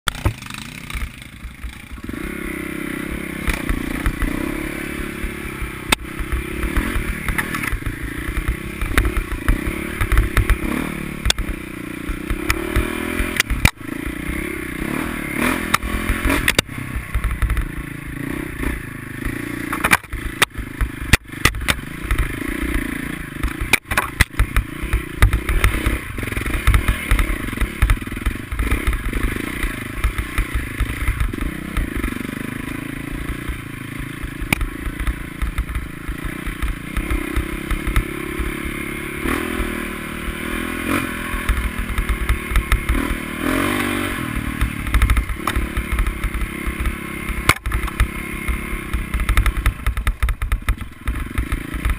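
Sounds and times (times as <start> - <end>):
motorcycle engines revving: 0.1 - 51.9
sharp knocks and clattering: 5.6 - 13.8, 19.2 - 22.4, 23.4 - 32.2.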